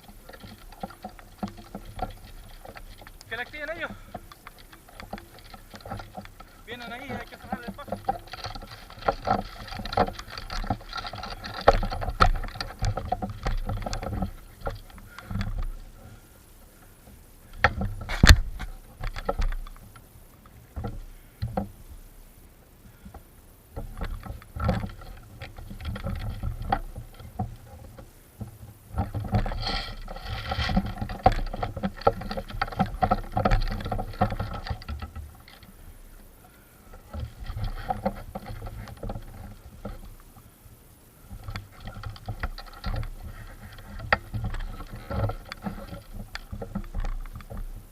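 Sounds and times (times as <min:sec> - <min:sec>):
sharp clicks and knocks: 0:00.0 - 0:16.2, 0:17.0 - 0:21.8, 0:23.0 - 0:36.3
rustling through undergrowth: 0:00.0 - 0:47.9.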